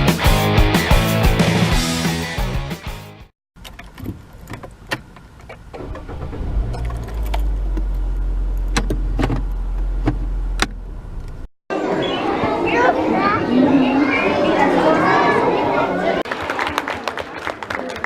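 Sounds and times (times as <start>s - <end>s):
steady low rumble: 5.8s - 11.5s.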